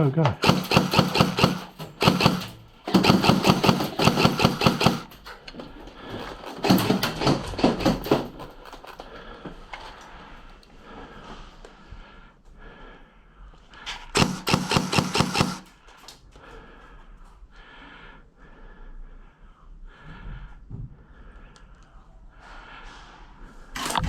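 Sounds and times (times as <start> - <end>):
airsoft guns firing full-auto: 0.4 - 5.4, 6.4 - 8.3, 14.1 - 15.7
movement: 14.0 - 15.8.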